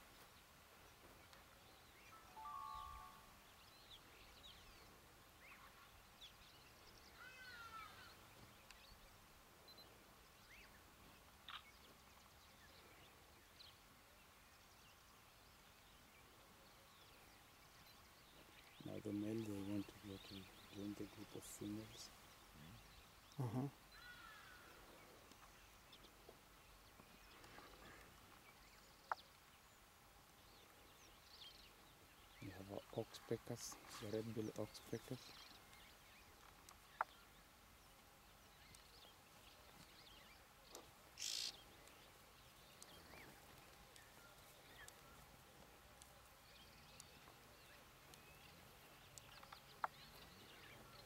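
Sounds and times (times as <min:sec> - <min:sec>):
wild bird calls: 0:00.0 - 0:13.6, 0:15.8 - 0:51.0.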